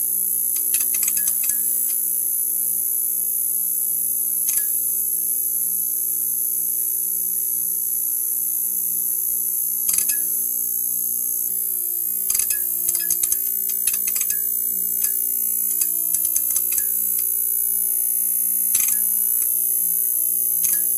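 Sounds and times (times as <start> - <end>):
neon sign buzzing: 9.8 - 20.9.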